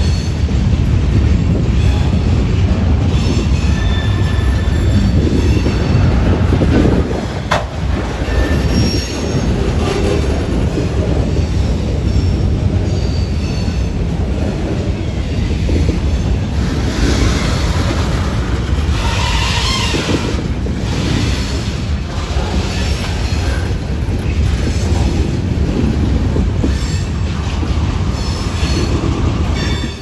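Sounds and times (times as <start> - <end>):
freight train wheels rumbling: 0.0 - 30.0
faint high wheel squeals: 3.2 - 6.0, 8.2 - 9.5.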